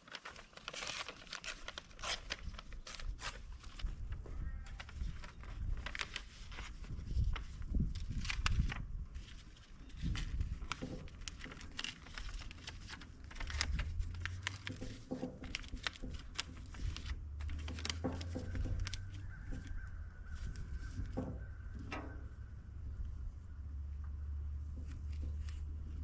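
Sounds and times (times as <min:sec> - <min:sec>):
wind rumbling on microphone: 0:02.0 - 0:26.0
scattered clicks and knocks: 0:10.7 - 0:19.8, 0:20.9 - 0:22.2.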